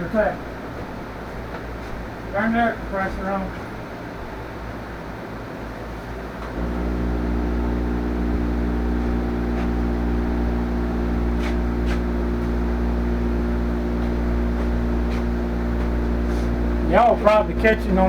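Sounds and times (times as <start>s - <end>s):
air compressor running: 6.5s - 18.0s.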